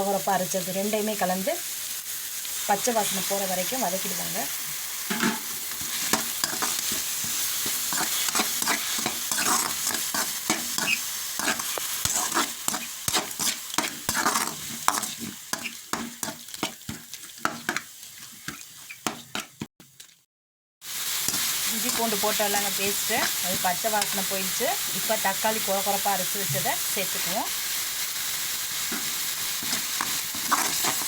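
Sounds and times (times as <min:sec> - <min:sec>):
paste sizzling in oil: 0:00.0 - 0:20.2, 0:20.8 - 0:31.0
spatula scraping a pan: 0:05.1 - 0:20.2, 0:21.2 - 0:24.2, 0:28.8 - 0:31.0.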